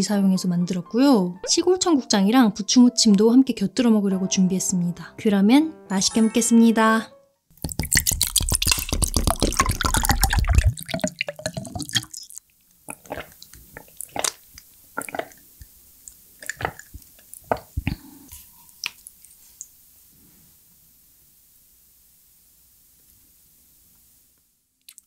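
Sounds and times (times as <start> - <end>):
wet chewing smacks: 7.6 - 19.7
wet squishing food in mouth: 7.6 - 19.7.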